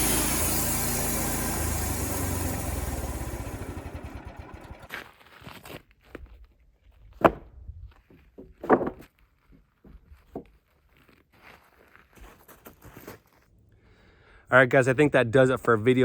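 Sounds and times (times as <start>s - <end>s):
clunks: 0.0s - 4.9s
sawmill engine running down: 0.0s - 4.9s.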